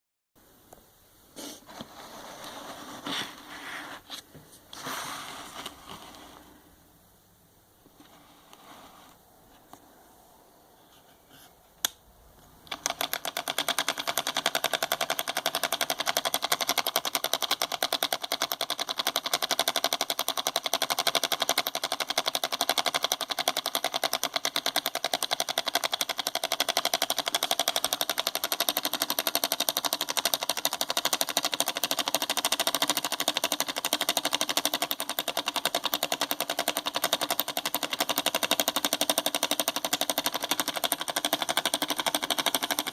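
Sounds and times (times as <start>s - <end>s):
solenoid engine clattering: 12.7s - 42.9s.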